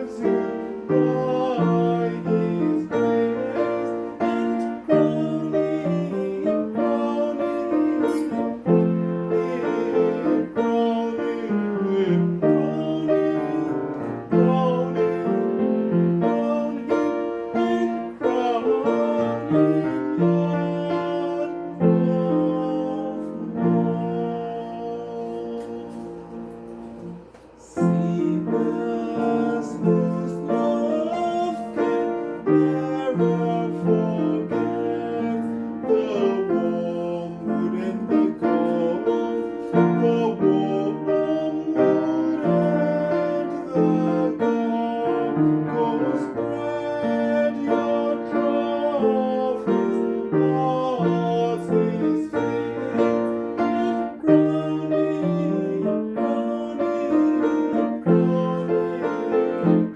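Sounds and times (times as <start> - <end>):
hymn played on piano: 0.0 - 59.9.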